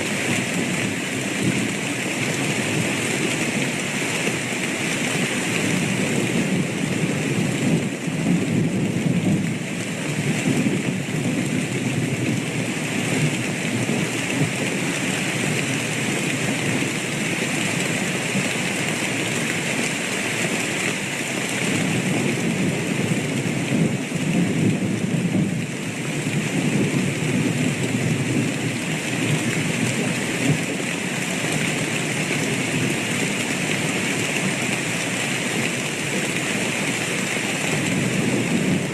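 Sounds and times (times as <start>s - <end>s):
heavy rainfall: 0.0s - 38.9s
rolling thunder rumbles: 37.8s - 38.9s.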